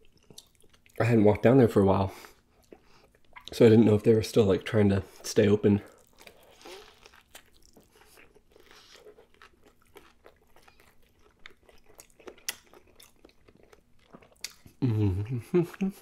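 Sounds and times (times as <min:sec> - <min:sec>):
person chewing food: 0:00.0 - 0:01.0, 0:02.2 - 0:03.5, 0:05.9 - 0:16.0
soft crunches and mouth clicks: 0:05.9 - 0:14.8.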